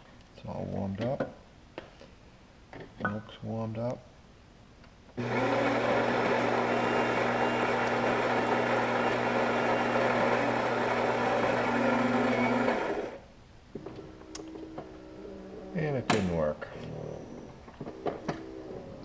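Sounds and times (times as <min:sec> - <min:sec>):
coffee grinder motor running: 0:05.2 - 0:13.2.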